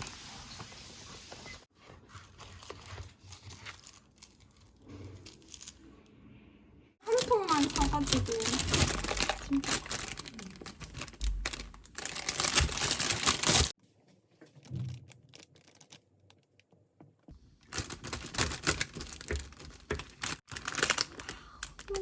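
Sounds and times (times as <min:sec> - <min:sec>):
packaging crinkling and clicking: 0:07.1 - 0:13.7, 0:14.6 - 0:16.7, 0:17.6 - 0:22.0.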